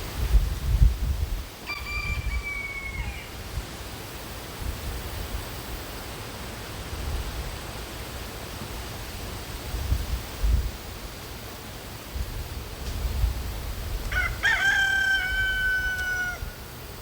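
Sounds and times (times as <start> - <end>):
wind buffeting microphone: 0.0 - 3.6, 12.1 - 14.6
outdoor hiss: 0.0 - 17.0.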